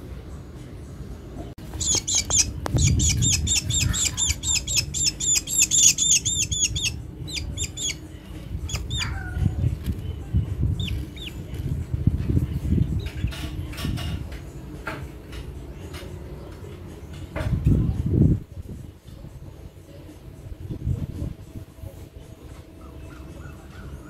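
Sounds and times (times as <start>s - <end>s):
young bird begging calls: 1.8s - 8.0s, 8.6s - 9.4s.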